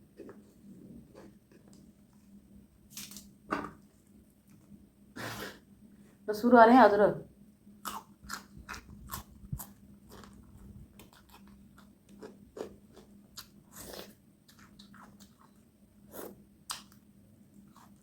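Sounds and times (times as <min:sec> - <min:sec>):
person chewing and crunching: 0:07.8 - 0:17.0, 0:17.6 - 0:18.0.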